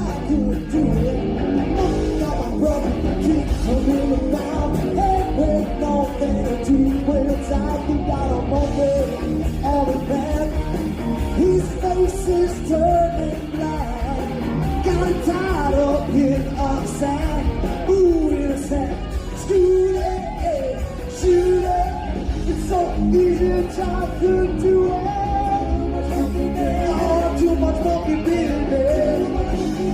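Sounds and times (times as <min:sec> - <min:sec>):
lead singer singing: 0:00.0 - 0:29.9
rock band playing: 0:00.0 - 0:29.9.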